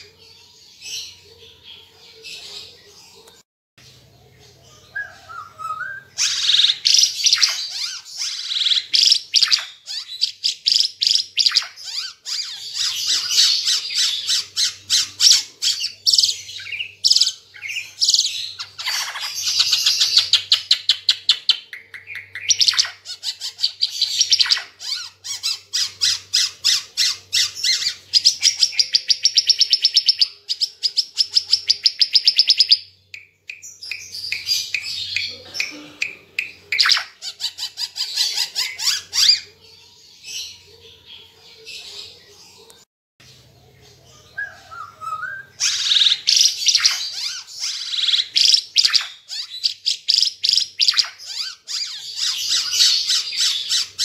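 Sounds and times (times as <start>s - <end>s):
songbird singing: 0.0s - 54.0s.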